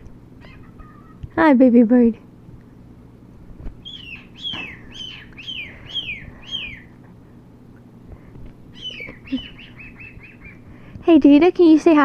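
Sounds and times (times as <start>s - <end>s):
cockatiel whistled chirps: 3.8s - 6.9s, 8.8s - 10.6s.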